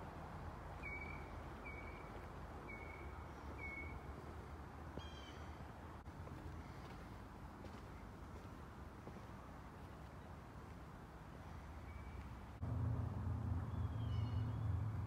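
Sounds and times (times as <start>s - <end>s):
bird calling: 0.8s - 4.1s, 5.0s - 5.6s, 13.7s - 14.7s
low background rumble: 12.6s - 15.0s.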